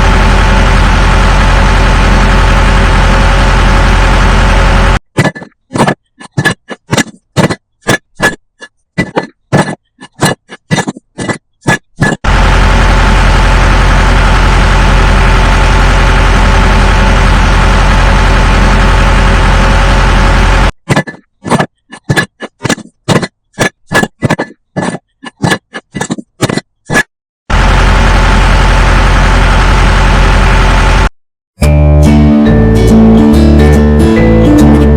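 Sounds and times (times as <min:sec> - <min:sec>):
motor drone with low hum: 0:00.0 - 0:05.0, 0:12.2 - 0:20.7, 0:27.5 - 0:31.1.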